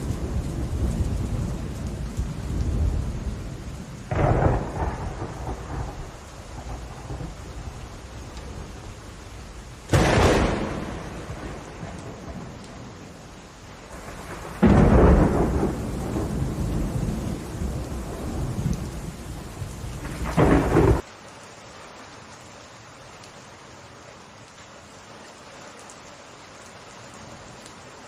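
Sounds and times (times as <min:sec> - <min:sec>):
thunderclap: 0:00.0 - 0:08.8, 0:09.9 - 0:13.1, 0:13.9 - 0:21.0
rolling thunder: 0:00.0 - 0:13.2, 0:13.9 - 0:21.0
steady rain: 0:00.0 - 0:28.0.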